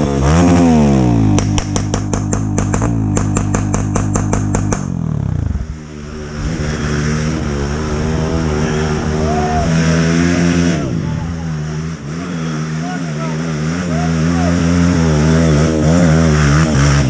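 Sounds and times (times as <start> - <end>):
dirt bike engine running: 0.0 - 17.0
dirt bike engine clicking: 1.3 - 4.9.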